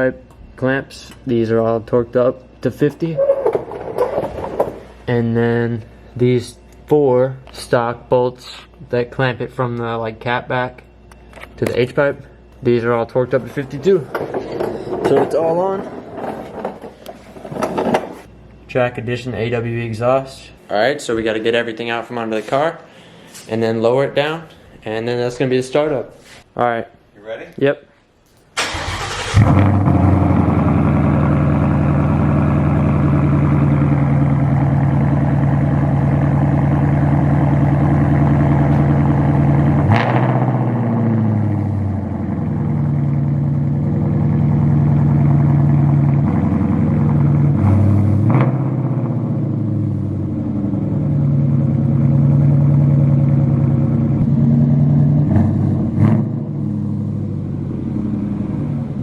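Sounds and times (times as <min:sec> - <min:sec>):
car engine idling: 0:28.6 - 0:59.0
engine throttle blips: 0:28.6 - 0:59.0.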